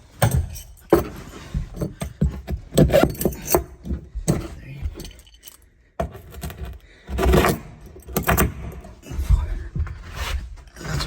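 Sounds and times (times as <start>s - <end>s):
metal hardware clinking: 0.1s - 5.7s.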